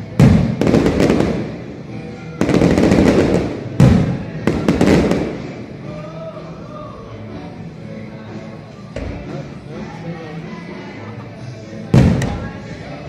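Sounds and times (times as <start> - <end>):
fireworks bursting with crackling: 0.2 - 5.8.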